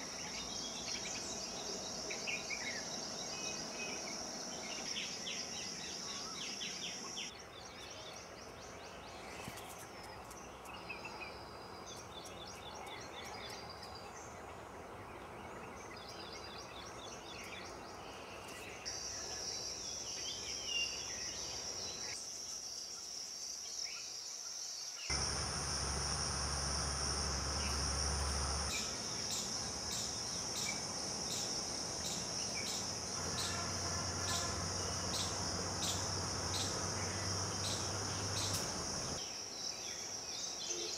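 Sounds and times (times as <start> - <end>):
insects trilling: 25.1 - 39.3.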